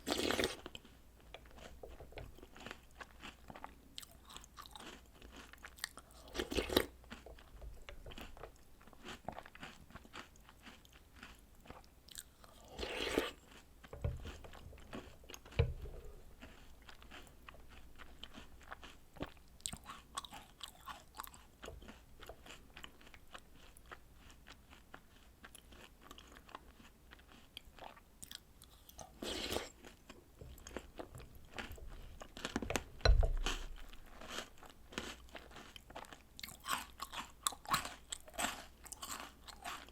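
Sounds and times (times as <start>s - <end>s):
chewing and crunching: 0.0s - 39.9s
low thuds: 32.6s - 34.0s.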